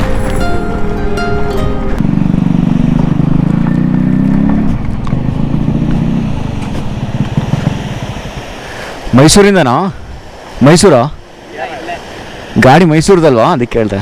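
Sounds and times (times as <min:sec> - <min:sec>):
motorcycle engine running: 0:01.7 - 0:08.5.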